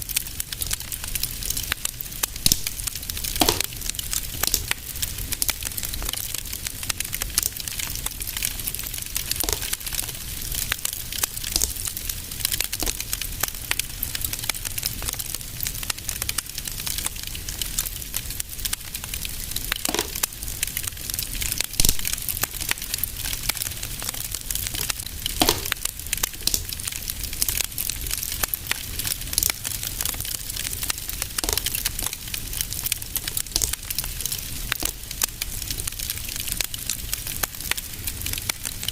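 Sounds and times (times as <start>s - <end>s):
fire crackling: 0.0s - 38.9s
fire pops: 0.1s - 38.8s.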